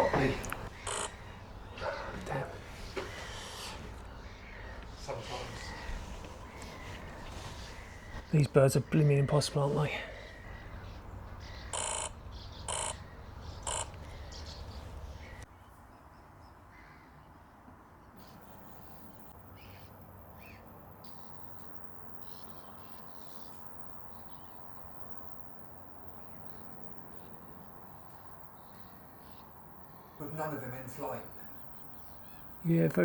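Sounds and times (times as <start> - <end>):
crow cawing: 0.0 - 8.3, 10.0 - 15.4, 16.7 - 17.1
faint small bird calls: 10.1 - 15.5.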